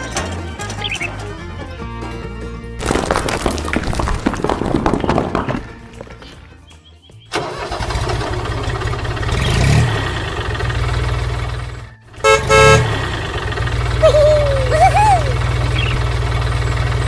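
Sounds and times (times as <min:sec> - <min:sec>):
vehicle engine running: 0:00.0 - 0:02.8, 0:05.7 - 0:17.0
horn honks: 0:10.8 - 0:17.0.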